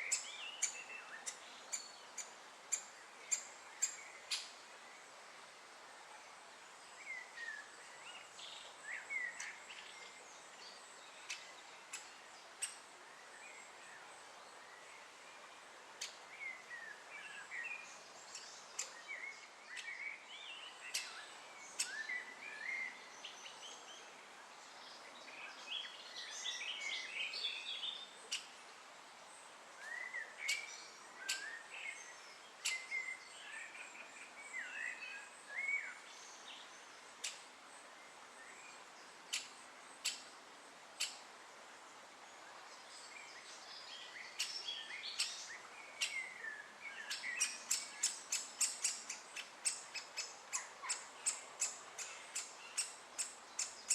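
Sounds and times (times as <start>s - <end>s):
birds chirping: 29.8s - 37.4s, 42.6s - 53.9s.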